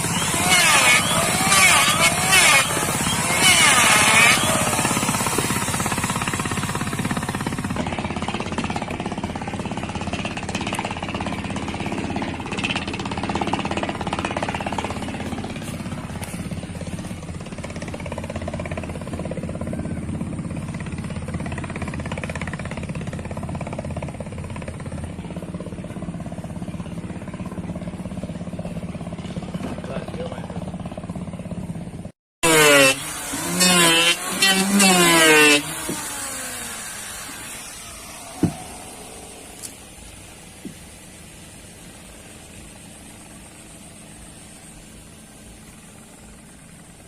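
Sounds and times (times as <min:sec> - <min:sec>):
power tool rattling buzz: 0:00.0 - 0:09.2, 0:32.4 - 0:39.5.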